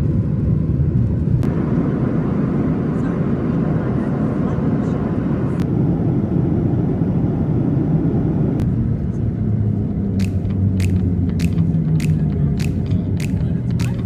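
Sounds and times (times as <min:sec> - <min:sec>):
airliner cabin rumble: 0:00.0 - 0:14.0
sharp ticks: 0:10.2 - 0:14.0.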